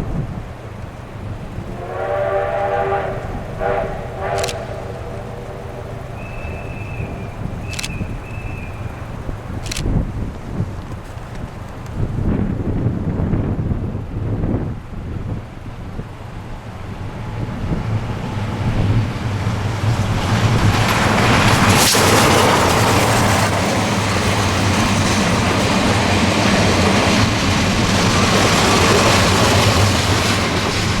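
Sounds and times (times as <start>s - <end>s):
train wheels rumbling: 0.0s - 31.0s
locomotive low drone: 0.5s - 9.4s.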